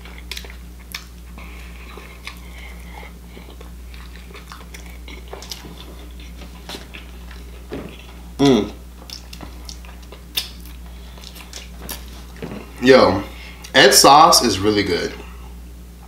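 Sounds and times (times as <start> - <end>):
man chewing food: 0.0 - 13.8
steady low hum: 0.0 - 16.0
wet mouth clicks and smacks: 0.2 - 1.2, 9.0 - 12.1.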